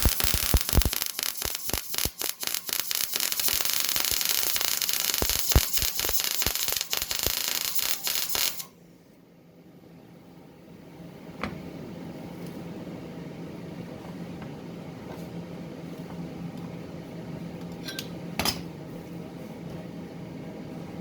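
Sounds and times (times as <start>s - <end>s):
welder humming and hissing: 0.0s - 8.7s.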